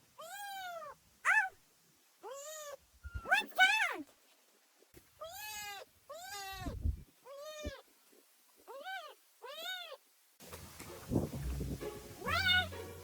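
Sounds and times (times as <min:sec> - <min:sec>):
cat meowing: 0:00.2 - 0:01.6, 0:02.2 - 0:03.5, 0:05.2 - 0:07.8, 0:08.7 - 0:10.0, 0:12.2 - 0:12.7.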